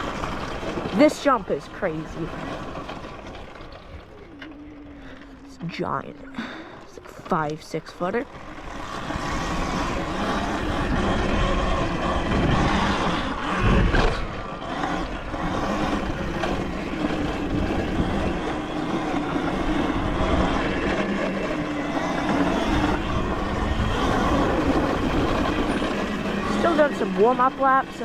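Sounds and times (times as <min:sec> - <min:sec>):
pit bike motor running: 0:00.0 - 0:28.0
wind noise: 0:08.8 - 0:27.2.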